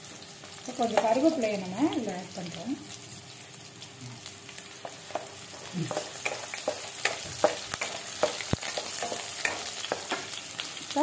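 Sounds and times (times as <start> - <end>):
shallots sizzling in hot oil: 0.0 - 11.0
spatula scraping and tapping pan: 4.8 - 10.4.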